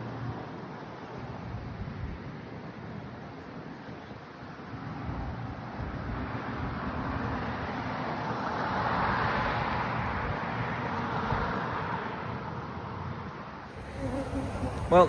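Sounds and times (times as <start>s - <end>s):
vehicle tyre noise passing: 13.8s - 15.0s
wind rumble on microphone: 13.8s - 15.0s.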